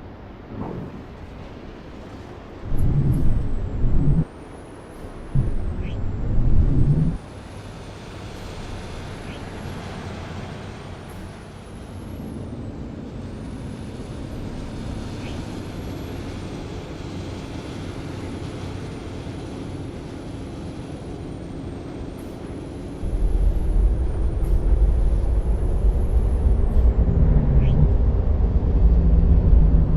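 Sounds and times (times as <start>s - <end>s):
bus engine and road noise: 0.0s - 29.9s
heavy low rumble: 2.5s - 4.4s, 5.2s - 7.3s, 23.0s - 29.9s
faint rising tone: 2.6s - 4.3s, 5.4s - 7.2s.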